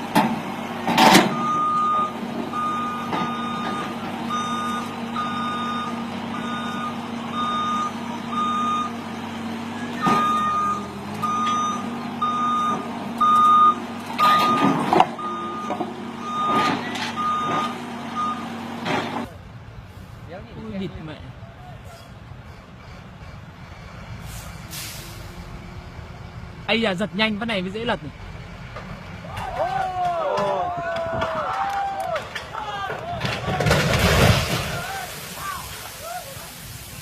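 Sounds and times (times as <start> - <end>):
truck engine hum: 0.0 - 30.1
truck reversing alarm beeping: 1.0 - 18.8.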